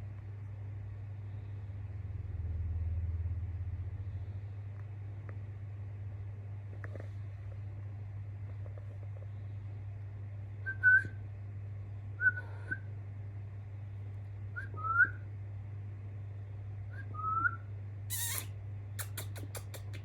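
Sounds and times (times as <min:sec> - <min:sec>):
steady low hum: 0:00.0 - 0:20.0
budgerigars chirping: 0:18.1 - 0:19.4.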